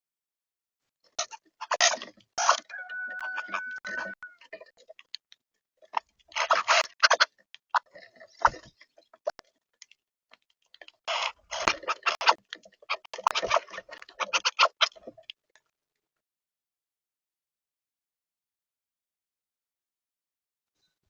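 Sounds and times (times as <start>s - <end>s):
bird pecking and scratching: 1.1s - 5.2s, 5.8s - 9.2s, 10.8s - 15.4s.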